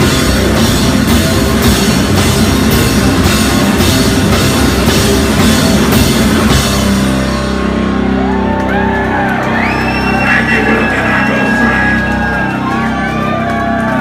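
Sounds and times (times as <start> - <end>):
drums and crashing cymbals: 0.0 - 7.6
live heavy rock band playing: 0.0 - 13.9
distorted guitar: 9.7 - 13.1.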